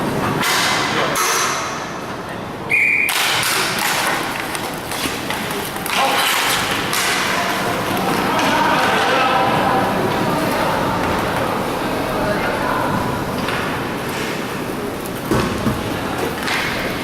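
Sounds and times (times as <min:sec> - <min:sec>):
skate wheels rolling: 0:02.8 - 0:17.0
sticks and puck knocking: 0:03.1 - 0:08.9.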